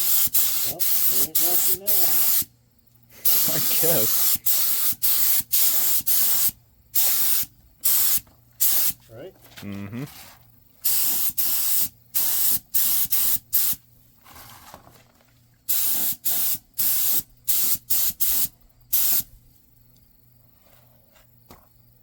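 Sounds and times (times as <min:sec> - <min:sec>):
spray paint hissing: 0:00.0 - 0:02.5, 0:03.2 - 0:09.0, 0:10.8 - 0:13.8, 0:15.7 - 0:19.3.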